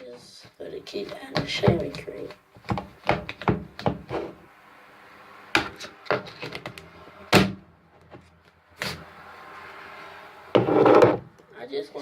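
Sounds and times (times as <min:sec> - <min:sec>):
hard objects knocking: 0:01.3 - 0:04.4, 0:10.5 - 0:11.4.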